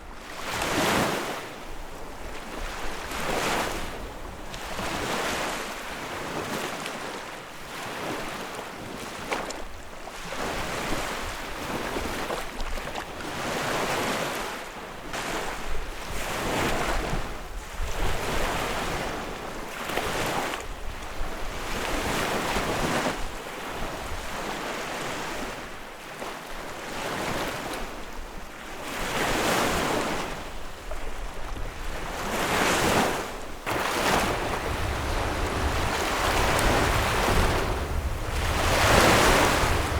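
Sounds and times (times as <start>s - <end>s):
wind rumble on microphone: 15.6s - 24.4s, 27.9s - 39.9s
lake waves washing onto shore: 28.8s - 39.9s.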